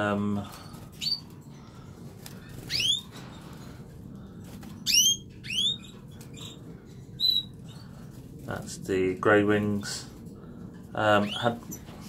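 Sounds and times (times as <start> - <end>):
canaries giving rising call notes: 0.9 - 1.5, 2.3 - 3.6, 4.5 - 8.2.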